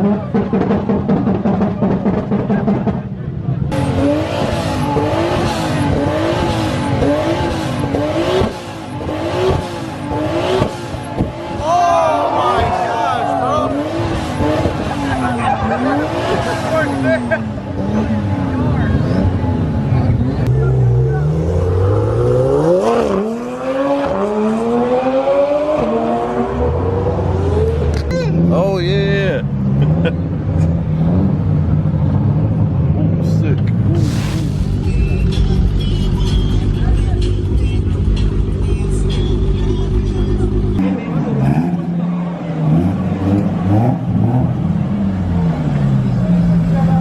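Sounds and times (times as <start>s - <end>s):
car engine revving hard: 3.7s - 11.8s, 13.3s - 28.5s, 33.8s - 35.7s, 40.4s - 47.0s
exhaust cracks: 33.9s - 38.6s.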